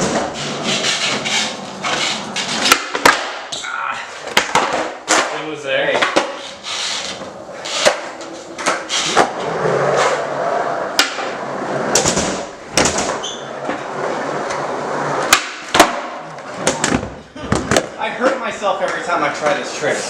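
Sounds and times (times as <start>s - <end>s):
skateboard clacking down: 0.0s - 3.6s, 4.3s - 13.2s
skateboard wheels rolling: 0.0s - 18.4s.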